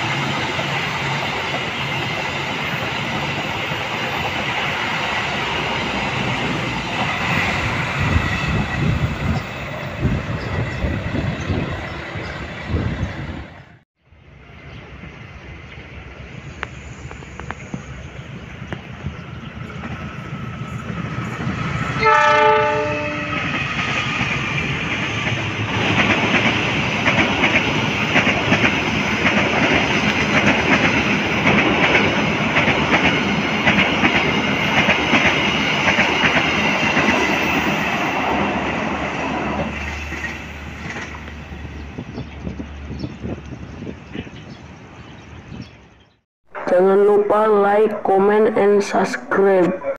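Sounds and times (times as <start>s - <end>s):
train rumble: 0.0s - 46.0s
locomotive horn: 22.0s - 23.5s
wheels clattering on rails: 23.4s - 41.4s.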